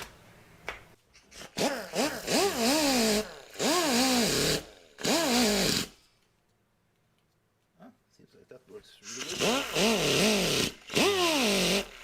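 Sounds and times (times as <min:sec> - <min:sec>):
pneumatic wire brush whining: 0:01.2 - 0:06.1, 0:09.0 - 0:12.0.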